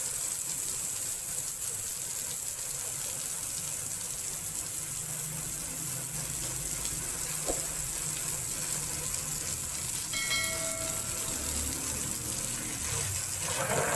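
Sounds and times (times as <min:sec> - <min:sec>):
water spraying hiss: 0:00.0 - 0:13.9
compressor humming: 0:06.0 - 0:13.9
brief high tone: 0:10.1 - 0:12.4.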